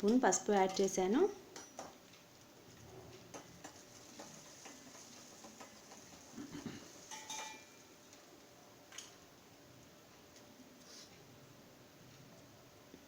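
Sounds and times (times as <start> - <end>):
spices frying in oil: 0.0 - 11.0
metal spoon stirring in pan: 3.2 - 7.9.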